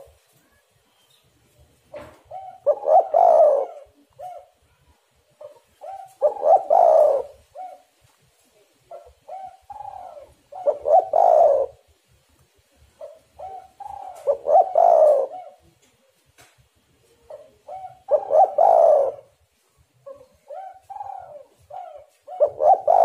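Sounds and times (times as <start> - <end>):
dove cooing: 0.0 - 0.2, 1.9 - 8.0, 8.8 - 12.0, 12.9 - 16.0, 17.0 - 19.4, 20.0 - 23.0.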